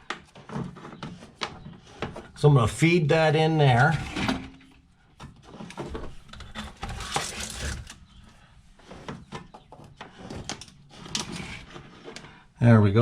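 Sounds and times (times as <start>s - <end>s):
wire scraping and rustling: 3.7s - 12.4s.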